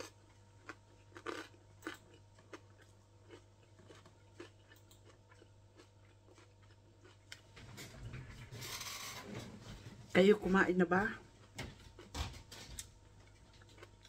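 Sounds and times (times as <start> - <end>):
faint chewing clicks: 0.0 - 7.5
low steady hum: 0.0 - 14.0.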